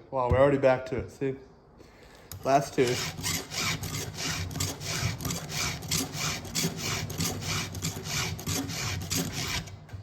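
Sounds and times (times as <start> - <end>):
file rasping on saw chain: 2.8 - 9.7.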